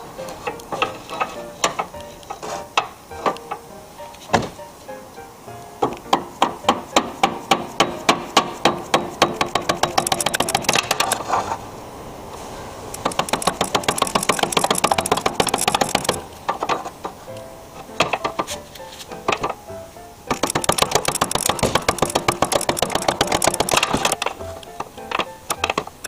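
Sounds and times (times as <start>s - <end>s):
rapid hammer strikes: 5.8s - 11.2s, 13.0s - 17.2s, 20.3s - 26.0s.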